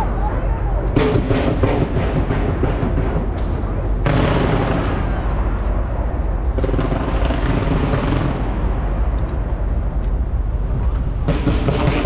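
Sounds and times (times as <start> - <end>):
fireworks bursts rumbling: 0.0 - 12.0
sharp firework cracks: 6.6 - 8.7.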